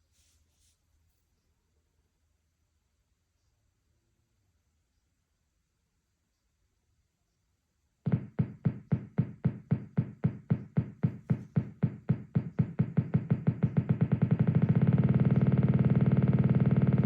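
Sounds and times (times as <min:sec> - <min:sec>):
synthesizer pulsing note: 0:11.3 - 0:17.0.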